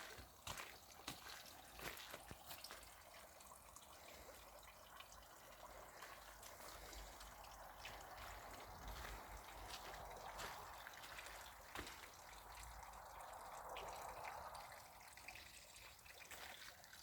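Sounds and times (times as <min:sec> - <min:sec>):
sharp drip-like ticks: 0:00.0 - 0:17.0
water trickling and splashing: 0:00.0 - 0:17.0.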